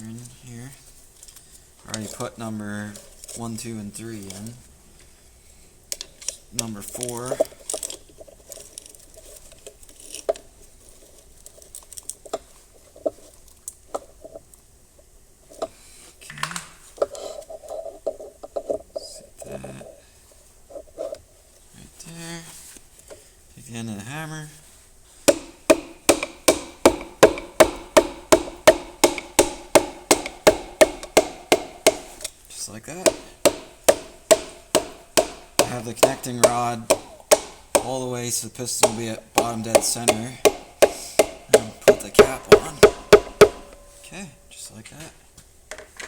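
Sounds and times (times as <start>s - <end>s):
hammer tapping piston: 25.3s - 44.0s.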